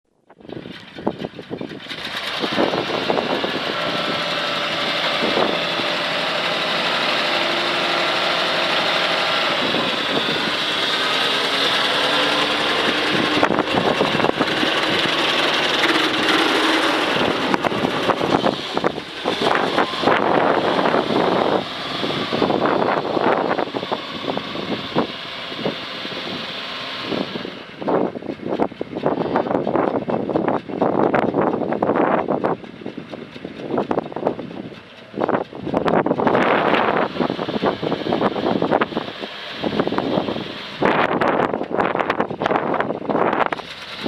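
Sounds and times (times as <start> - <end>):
truck engine running: 0.1 - 44.0.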